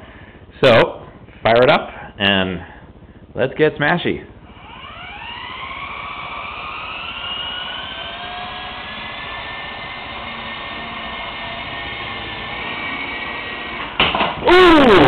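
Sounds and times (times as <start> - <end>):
model helicopter motor whine: 4.5 - 14.0.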